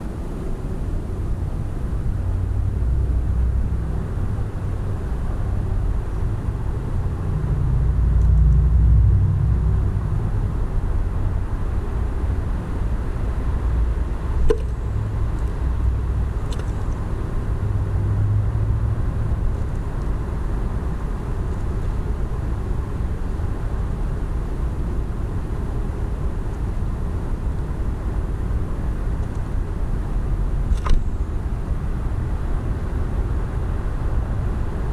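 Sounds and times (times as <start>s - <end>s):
low outdoor rumble: 0.0s - 34.9s.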